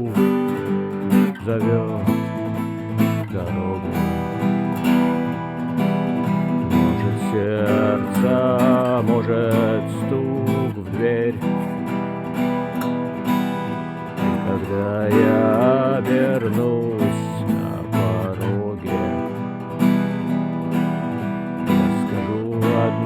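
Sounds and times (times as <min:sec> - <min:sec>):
person singing: 0:00.0 - 0:12.8, 0:13.6 - 0:23.0
acoustic guitar strumming: 0:00.0 - 0:23.0.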